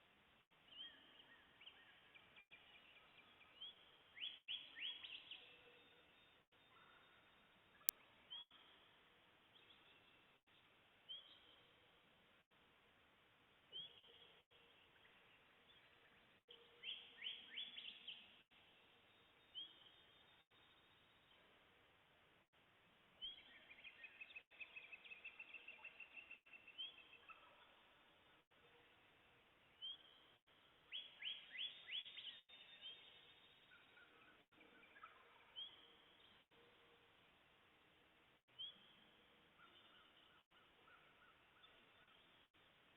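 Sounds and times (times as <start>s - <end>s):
faint songbird chirps: 0.4s - 12.5s, 13.5s - 42.9s
soft low bird calls: 38.5s - 42.8s.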